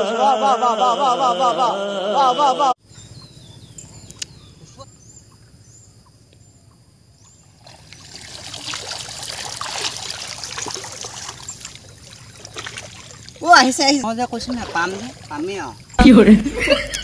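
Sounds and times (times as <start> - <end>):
water splashing and sloshing: 7.4 - 17.0.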